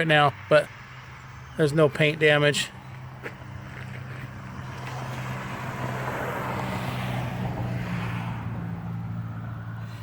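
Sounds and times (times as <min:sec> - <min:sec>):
vehicle passing on wet road: 0:04.3 - 0:09.8.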